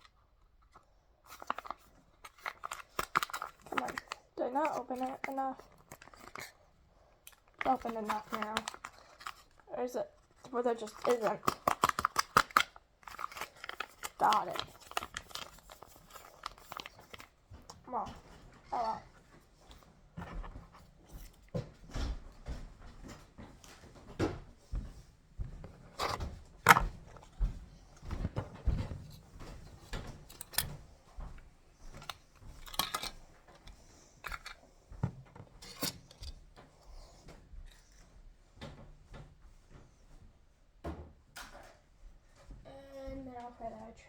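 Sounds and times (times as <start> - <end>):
pet food containers clicking and knocking: 0.7 - 24.6, 25.6 - 38.0.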